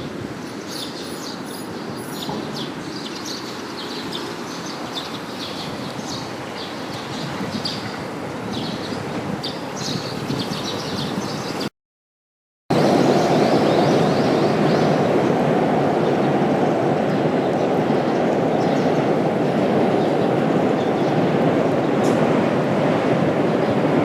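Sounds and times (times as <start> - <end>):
small birds chirping: 0.4 - 11.7, 16.0 - 22.2.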